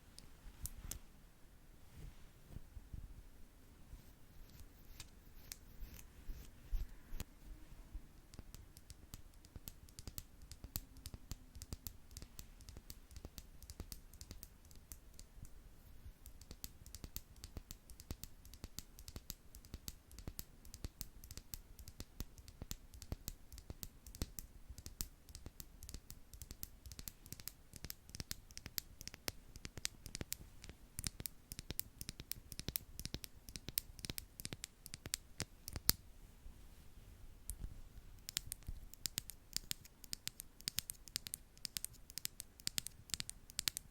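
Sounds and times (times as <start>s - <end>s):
brushes tapping a microphone: 3.9s - 7.3s.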